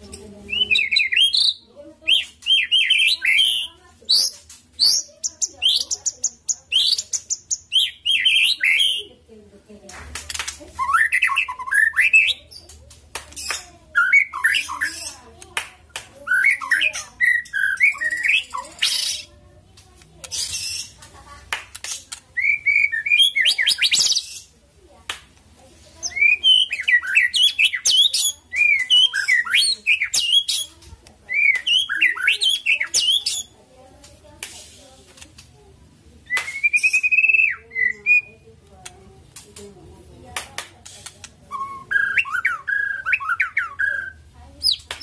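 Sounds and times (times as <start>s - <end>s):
songbird whistling and warbling: 0.5s - 9.1s, 10.7s - 12.8s, 13.4s - 15.2s, 16.2s - 19.3s, 21.9s - 24.5s, 26.0s - 33.6s, 36.2s - 38.5s, 40.8s - 45.0s
bird clicks and hissing notes: 17.8s - 22.4s, 29.2s - 35.6s, 38.6s - 42.2s.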